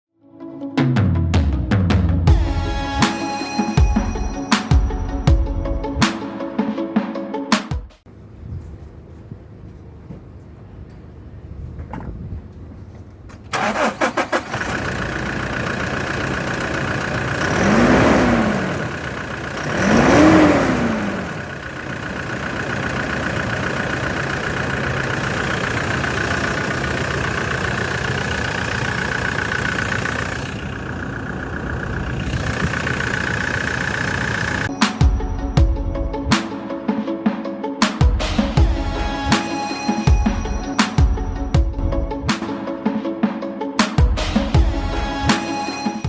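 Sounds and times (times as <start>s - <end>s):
engine idling: 12.4s - 34.7s
engine starter cranking: 13.0s - 34.7s
engine revving: 13.5s - 34.7s.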